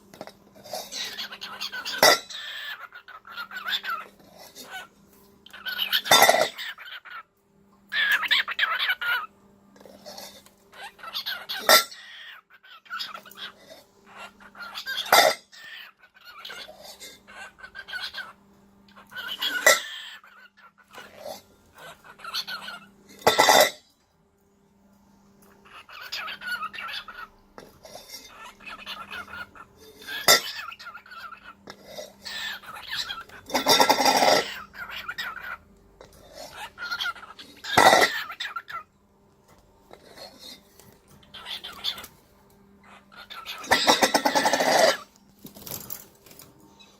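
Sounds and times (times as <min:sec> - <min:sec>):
cockatiel chirping and chatter: 0:00.6 - 0:07.3, 0:07.9 - 0:23.7, 0:25.5 - 0:39.0, 0:39.9 - 0:46.9
bird rattling food bowl: 0:43.6 - 0:46.6.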